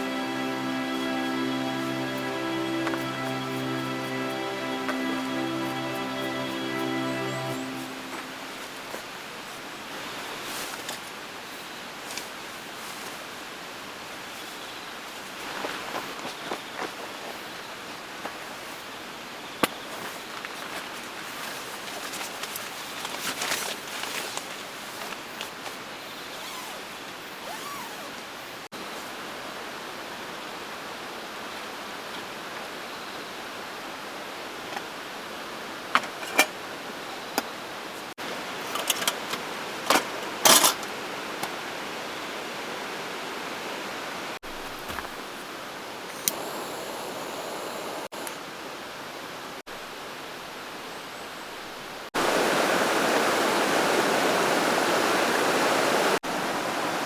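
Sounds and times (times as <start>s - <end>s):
river flowing: 0.0s - 9.0s, 52.2s - 57.0s
camping gear clinking and rattling: 20.4s - 26.8s, 27.4s - 28.1s, 35.9s - 36.6s, 38.5s - 40.9s.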